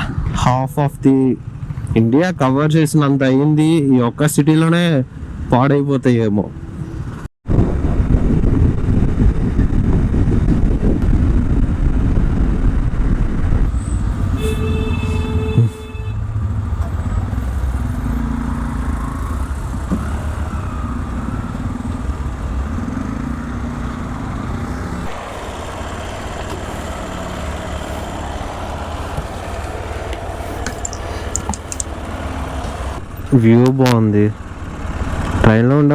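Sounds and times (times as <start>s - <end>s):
traffic engines rumbling: 0.0s - 35.9s
wind: 0.0s - 35.9s
vehicle horn: 13.8s - 16.3s.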